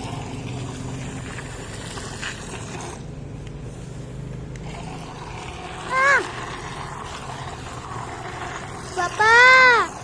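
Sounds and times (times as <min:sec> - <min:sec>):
small electric motor humming: 0:04.2 - 0:10.0.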